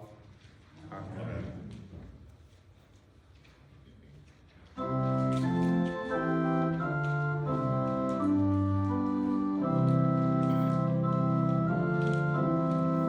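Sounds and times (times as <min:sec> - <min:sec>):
organ playing chords: 0:04.8 - 0:13.0.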